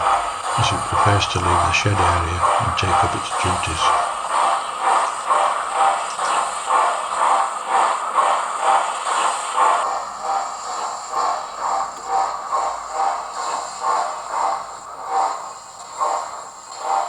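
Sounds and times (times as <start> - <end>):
steady hiss: 0.0 - 4.2
steam locomotive exhaust chuffs: 0.0 - 17.0.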